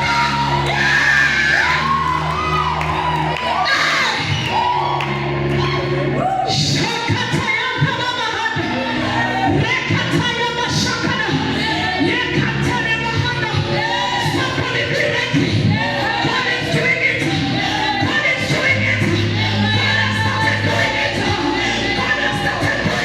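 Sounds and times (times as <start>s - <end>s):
choir singing: 0.0s - 2.0s, 8.7s - 12.5s, 13.4s - 23.0s
bass: 0.0s - 23.0s.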